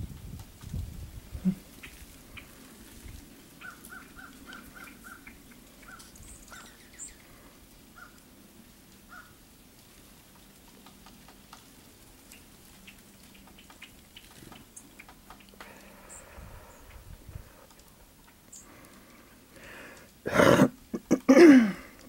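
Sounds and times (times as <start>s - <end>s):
wild birds calling: 1.3s - 20.9s
thin high-pitched bird chirps: 3.6s - 7.2s.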